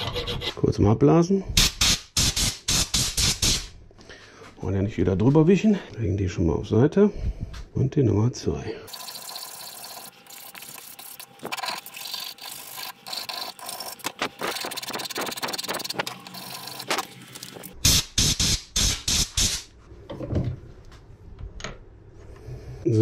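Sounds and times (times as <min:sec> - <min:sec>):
file rasping on brake pad: 0:00.0 - 0:00.6.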